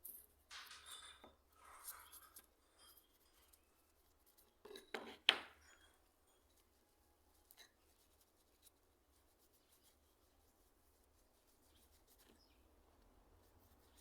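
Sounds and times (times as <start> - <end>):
small metal parts clinking: 0.0 - 3.6.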